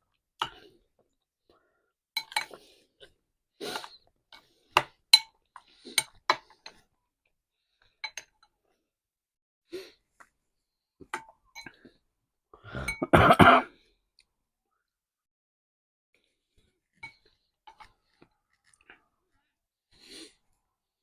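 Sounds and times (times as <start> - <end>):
person coughing: 12.8 - 13.8.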